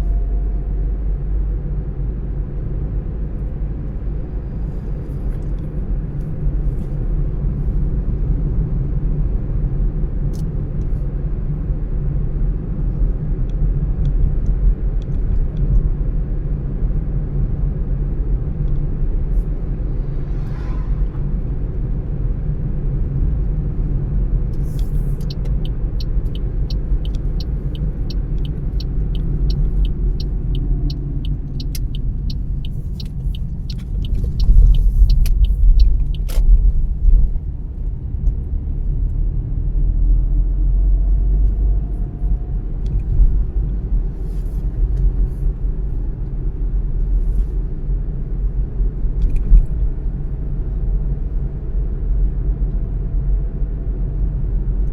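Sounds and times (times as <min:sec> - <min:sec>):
road and engine rumble: 0:00.0 - 0:54.9
light regular ticking: 0:24.7 - 0:36.5.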